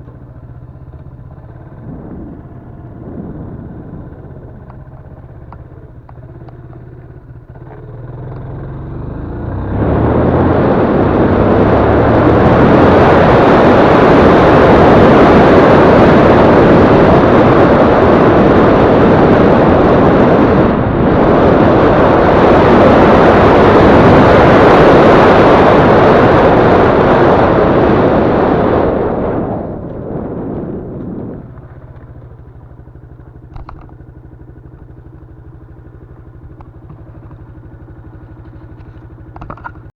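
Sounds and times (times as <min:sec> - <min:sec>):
motorcycle engine running: 0:00.0 - 0:39.9
loud even rushing noise: 0:01.2 - 0:05.5.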